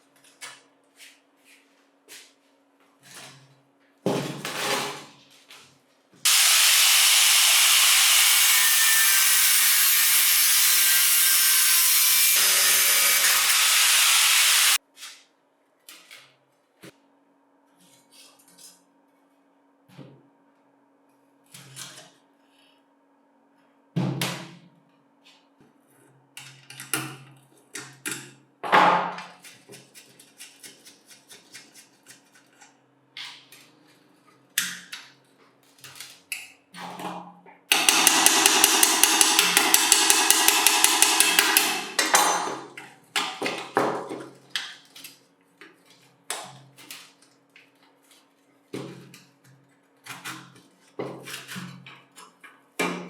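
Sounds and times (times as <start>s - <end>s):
knocks and taps on metal: 37.7s - 42.5s
loud rapid tool rattle: 37.7s - 42.6s.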